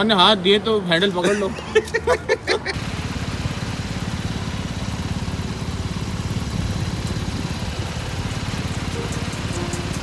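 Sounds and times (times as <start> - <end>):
motorcycle engine idling: 2.7 - 10.0.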